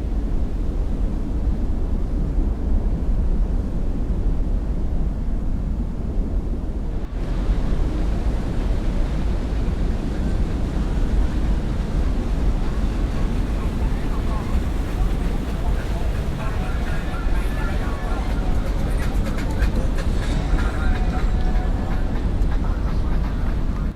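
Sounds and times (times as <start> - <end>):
water: 0.0 - 23.9
wind buffeting microphone: 0.0 - 23.9
boat engines rumbling: 5.9 - 23.9.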